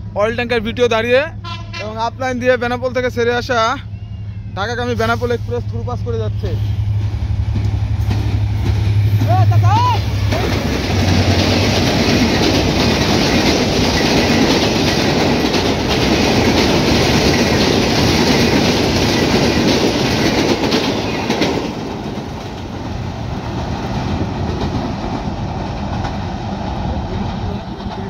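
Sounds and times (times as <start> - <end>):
train wheels clattering over rails: 6.9 - 28.0.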